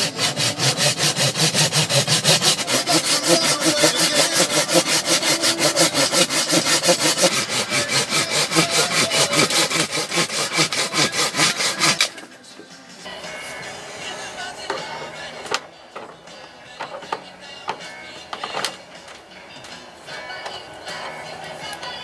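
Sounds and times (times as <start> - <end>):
hand saw cutting wood: 0.0 - 12.3.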